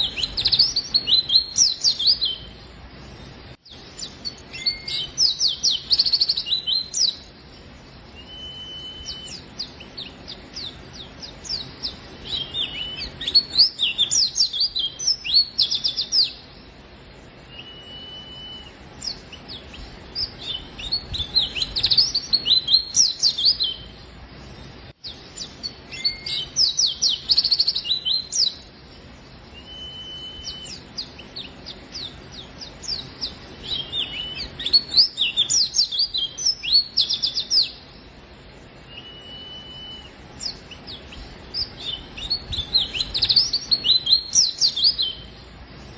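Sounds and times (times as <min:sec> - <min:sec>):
bird twittering chirps: 0:00.0 - 0:45.9
short level bird whistle: 0:04.5 - 0:07.2, 0:08.2 - 0:09.4, 0:17.5 - 0:18.8, 0:25.9 - 0:28.5, 0:29.6 - 0:30.8, 0:38.9 - 0:40.6.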